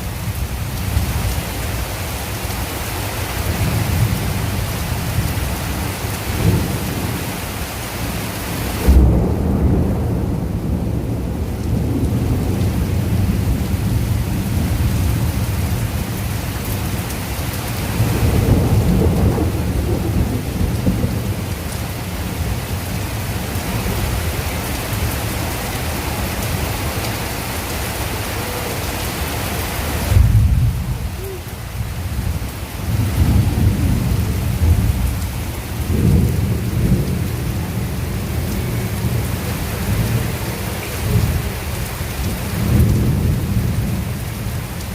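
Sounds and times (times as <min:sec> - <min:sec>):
heavy rain falling: 0:00.0 - 0:44.9
thunder rumbling: 0:08.1 - 0:17.0, 0:17.8 - 0:44.6.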